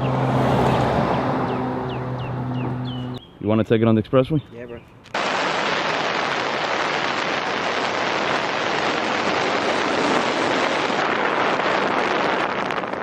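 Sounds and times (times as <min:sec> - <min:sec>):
wind and road noise: 0:00.0 - 0:13.0
wind buffeting microphone: 0:05.3 - 0:13.0.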